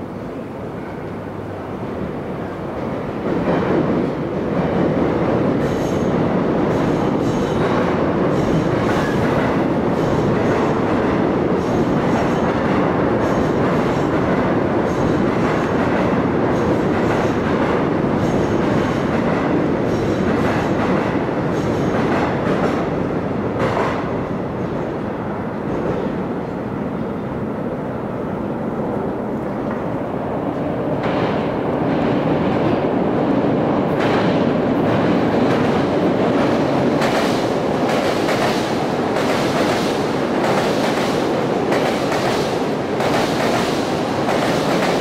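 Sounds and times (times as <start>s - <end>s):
train wheels rumbling on rail: 0.0s - 45.0s
regular rail clicks: 33.8s - 45.0s.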